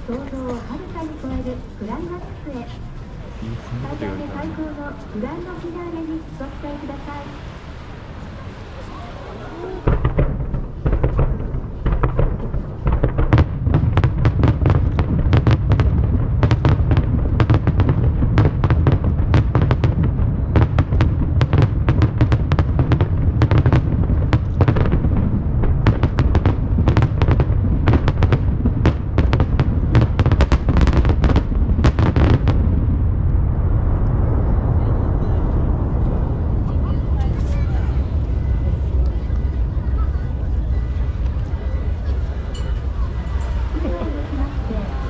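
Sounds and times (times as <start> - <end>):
low rumble: 0.0 - 45.0
fireworks bursting and crackling: 3.2 - 34.9.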